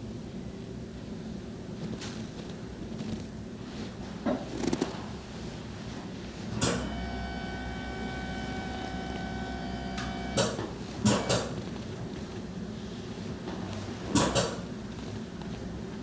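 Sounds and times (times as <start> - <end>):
small electric device humming: 6.6 - 11.4
electric device switch click: 6.6 - 11.5.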